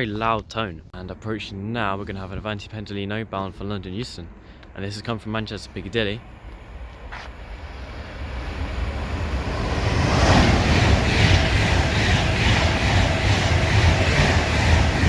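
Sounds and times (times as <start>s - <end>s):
electric train passing at speed: 4.3s - 15.0s
wheels rushing on rail: 5.8s - 15.0s.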